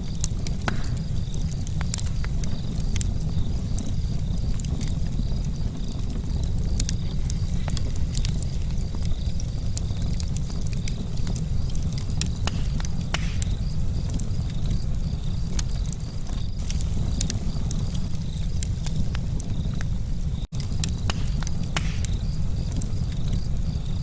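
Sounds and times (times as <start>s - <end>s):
campfire crackling: 0.0s - 24.0s
steady low rumble: 0.0s - 24.0s
sharp pops: 0.2s - 3.9s, 6.8s - 14.8s, 20.5s - 23.5s.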